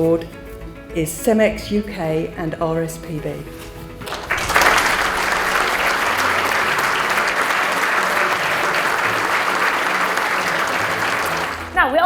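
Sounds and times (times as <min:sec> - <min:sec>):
faint background music: 0:00.0 - 0:12.0
large crowd applauding: 0:04.1 - 0:11.8.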